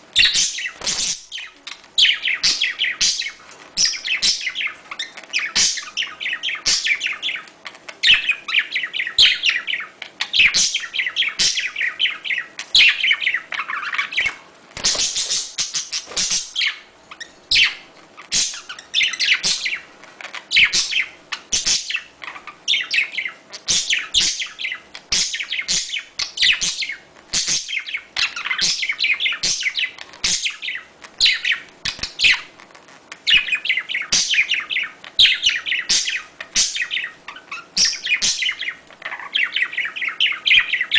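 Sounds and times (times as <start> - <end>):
budgerigars chirping and warbling: 0.2 - 40.9.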